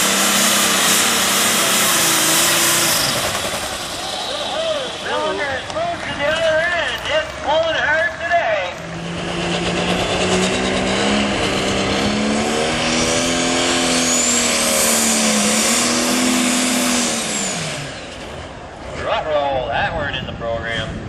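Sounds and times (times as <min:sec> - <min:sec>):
diesel engine under load: 0:00.0 - 0:21.0
turbo whistle: 0:13.9 - 0:14.6.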